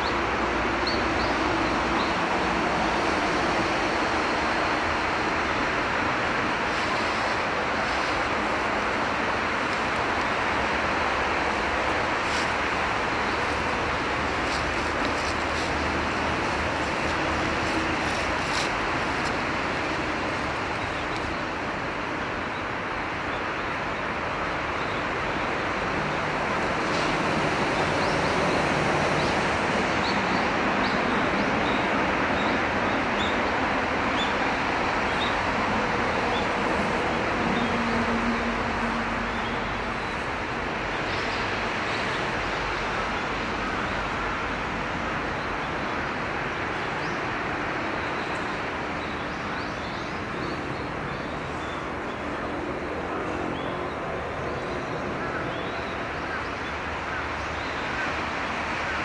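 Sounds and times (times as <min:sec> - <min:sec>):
river water rushing: 0:00.1 - 0:49.6
outdoor rushing noise: 0:01.4 - 0:21.8.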